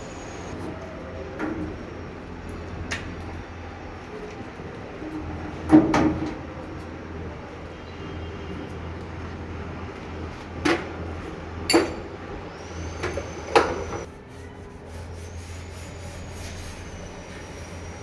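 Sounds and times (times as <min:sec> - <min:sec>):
steady low hum: 0:13.8 - 0:18.0.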